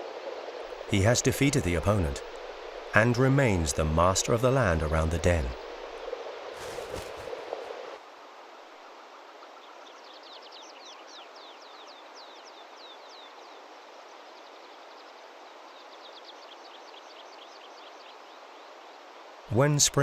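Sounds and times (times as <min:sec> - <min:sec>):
steady outdoor hiss: 0:00.0 - 0:20.0.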